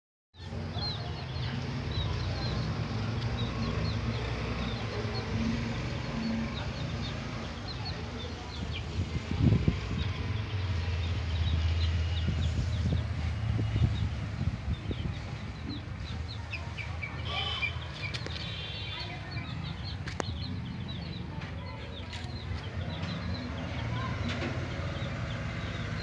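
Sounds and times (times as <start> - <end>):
chickens chirping: 0.4 - 26.0.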